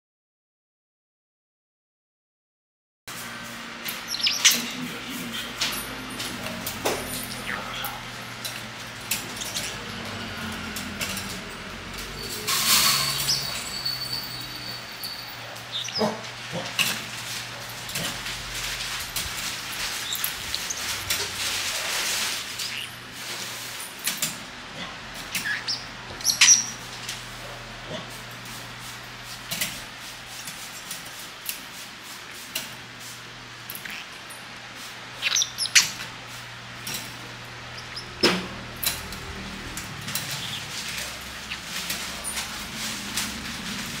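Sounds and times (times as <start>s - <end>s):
parrots chirping and squawking: 3.8s - 28.3s, 33.6s - 44.0s
parrot hissing: 7.3s - 8.1s, 15.7s - 17.0s, 19.9s - 23.2s, 35.0s - 36.0s.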